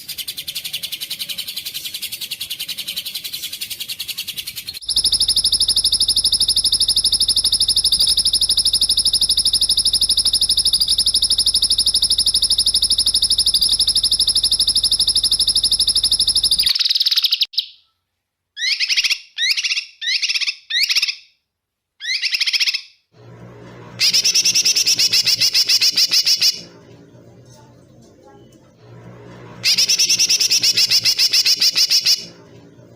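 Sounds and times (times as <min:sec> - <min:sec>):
small songbird trilling: 0:04.7 - 0:17.5.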